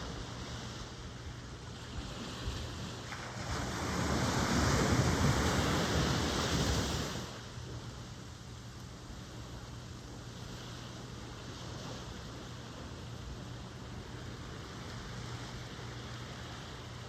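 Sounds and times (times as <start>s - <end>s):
wave washing in: 0.0s - 7.8s
low rumble of sea: 0.0s - 17.0s.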